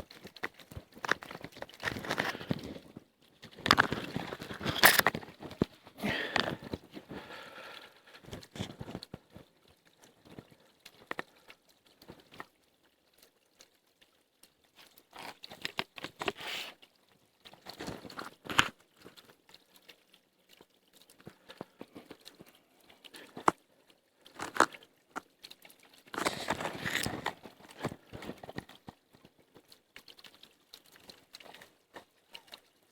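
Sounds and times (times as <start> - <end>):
twigs and brush crunching: 0.0 - 7.2, 24.3 - 24.8, 26.1 - 29.0.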